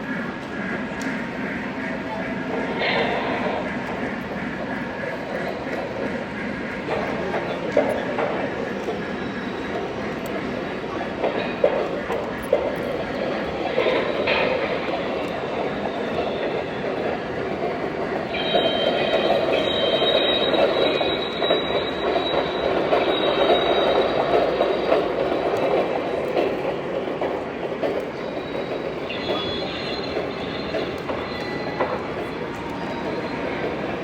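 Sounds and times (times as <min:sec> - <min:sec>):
model train rumbling on track: 0:00.0 - 0:34.0
high-pitched wheel squeal: 0:18.3 - 0:25.1, 0:28.2 - 0:34.0.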